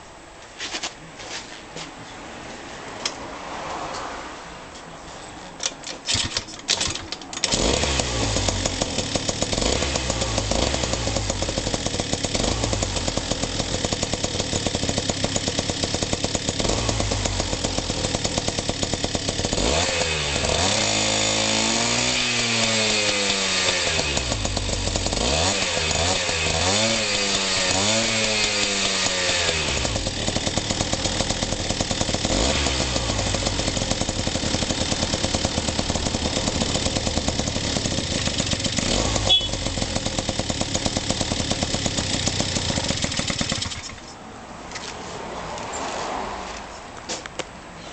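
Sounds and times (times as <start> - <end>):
scooter engine starting and revving: 6.0 - 44.2.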